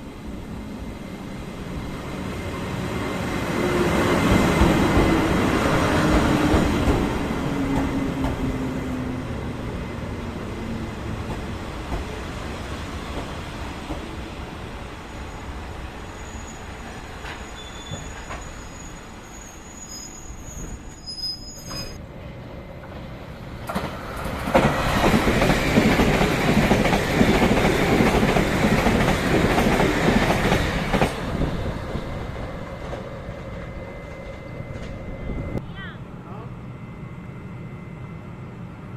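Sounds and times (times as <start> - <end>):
train rumbling past: 0.0 - 38.9
train wheels squealing: 15.0 - 22.0, 32.5 - 35.6.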